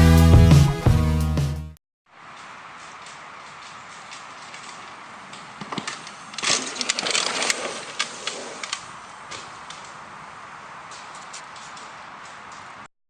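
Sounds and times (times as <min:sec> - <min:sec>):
steady outdoor hiss: 0:02.1 - 0:12.9
snapping and rustling twigs: 0:02.3 - 0:10.0.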